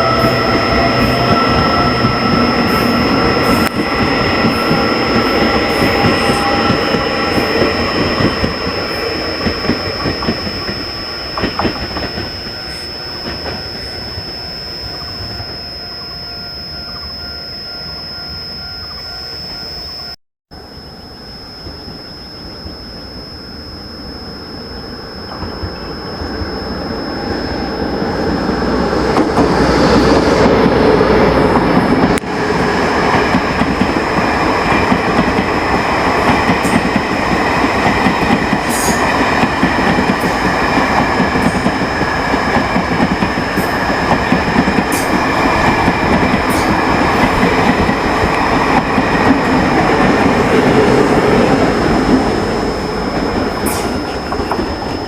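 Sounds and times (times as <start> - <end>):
train rumbling: 0.0 - 17.1, 24.0 - 55.0
high-pitched tone: 0.0 - 32.2.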